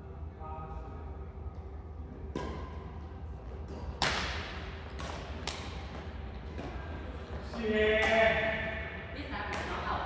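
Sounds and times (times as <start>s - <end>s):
rackets hitting shuttlecock: 2.3s - 7.0s, 7.9s - 8.6s.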